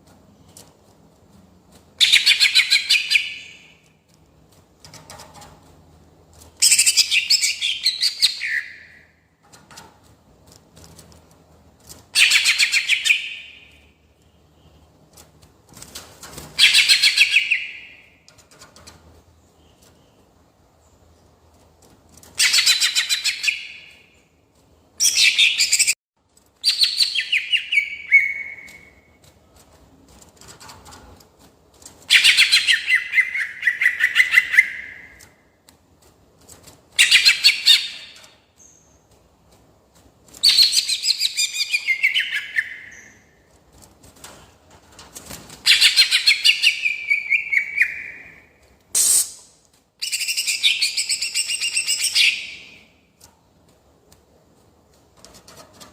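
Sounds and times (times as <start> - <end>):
bird singing rapid phrases: 6.6 - 9.0, 26.6 - 29.0, 32.1 - 35.3, 40.4 - 43.3, 45.6 - 48.4.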